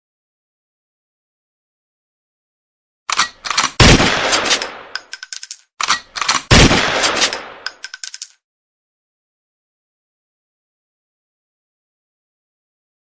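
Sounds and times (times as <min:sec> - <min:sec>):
sharp cracks like gunfire: 0:03.6 - 0:04.9, 0:06.4 - 0:07.4.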